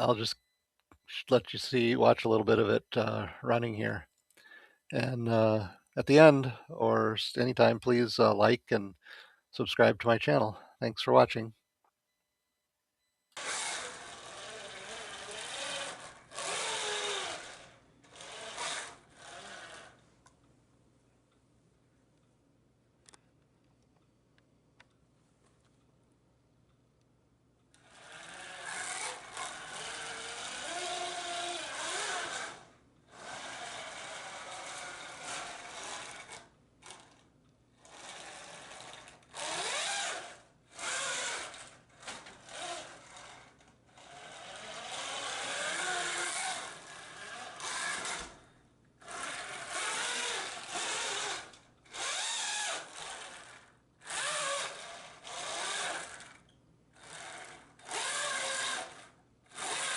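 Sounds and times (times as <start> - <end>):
toy tank motors and tracks: 13.4 - 20.0, 27.7 - 48.4, 49.0 - 59.9.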